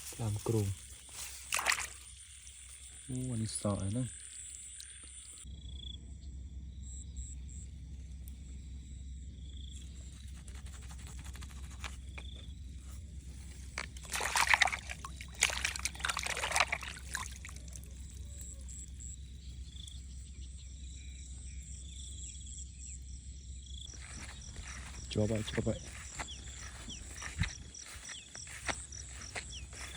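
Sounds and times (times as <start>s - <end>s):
water sloshing and splashing: 0.9s - 2.2s, 13.3s - 18.2s.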